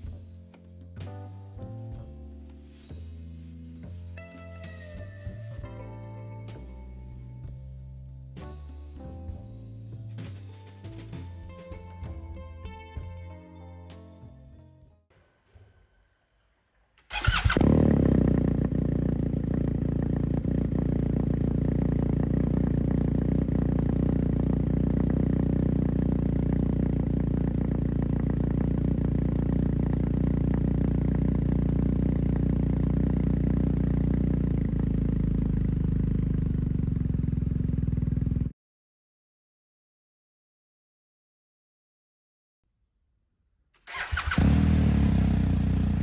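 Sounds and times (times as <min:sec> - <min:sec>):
motorcycle engine starting and idling: 0:17.0 - 0:38.5, 0:43.8 - 0:46.0.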